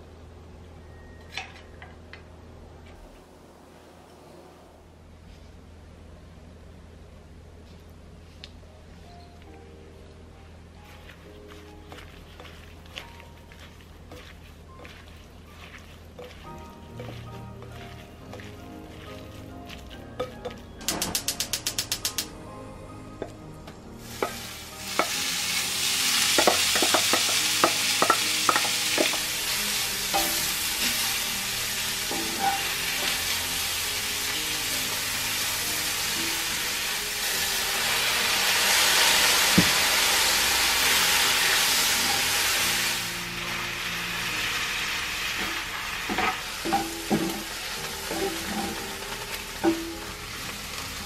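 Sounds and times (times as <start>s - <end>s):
spatula scraping a pan: 10.9s - 20.0s, 47.0s - 49.0s
greens sizzling in a frying pan: 10.9s - 22.2s, 24.0s - 51.0s.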